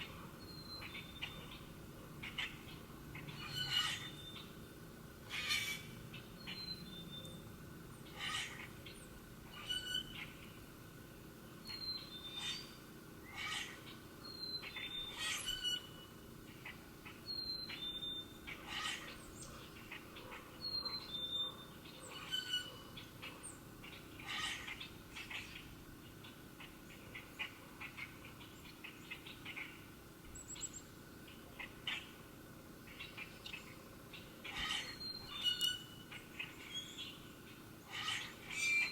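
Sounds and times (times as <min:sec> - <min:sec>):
birds chipping: 0:00.0 - 0:10.6, 0:11.7 - 0:38.9
bird trill: 0:00.4 - 0:04.6, 0:11.7 - 0:20.0, 0:20.6 - 0:29.8, 0:32.9 - 0:38.9.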